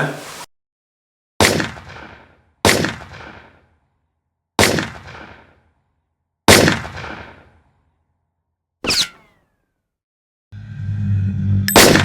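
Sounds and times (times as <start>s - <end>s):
rifle shots: 1.4s - 3.6s, 4.6s - 5.5s, 6.5s - 7.5s.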